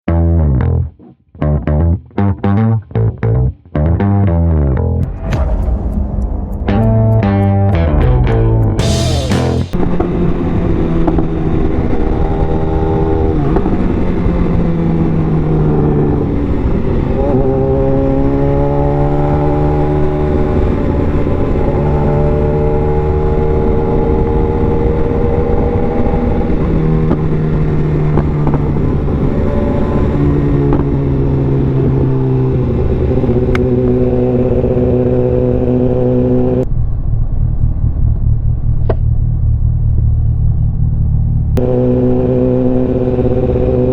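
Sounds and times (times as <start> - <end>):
wind rush: 5.0 - 11.4
motorcycle engine revving: 8.8 - 36.7, 37.4 - 43.9.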